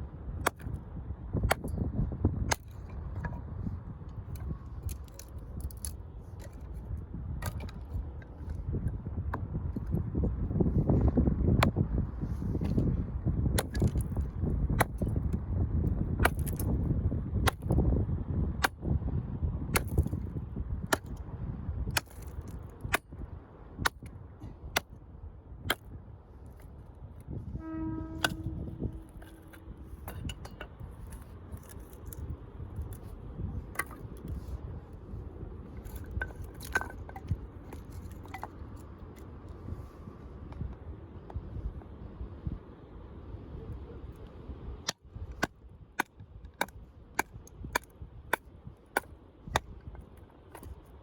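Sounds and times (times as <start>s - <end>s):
wind rumbling on microphone: 0.0s - 51.0s
short horn-like note: 27.5s - 29.7s.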